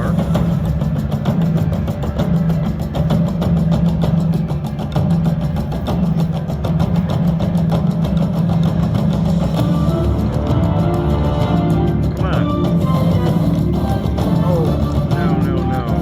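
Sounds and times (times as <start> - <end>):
pulsing low droning tone: 9.6 - 16.0.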